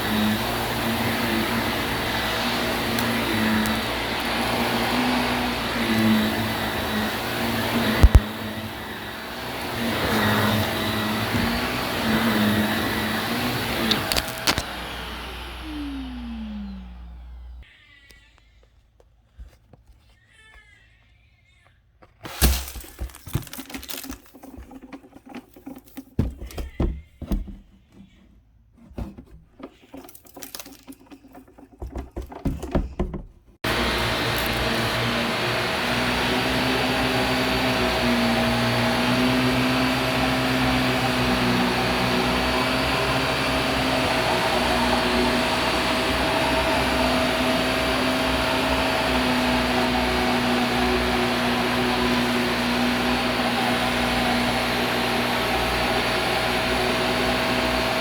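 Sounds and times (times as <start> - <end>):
vacuum cleaner running: 0.0 - 17.7, 33.6 - 58.0.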